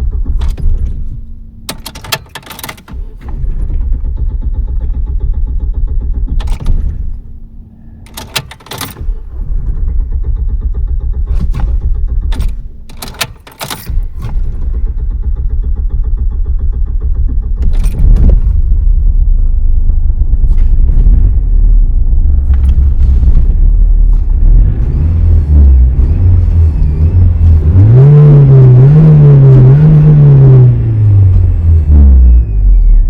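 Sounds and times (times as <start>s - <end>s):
engine cranking clicks: 0.0s - 31.8s
car engine running unevenly: 0.0s - 33.0s.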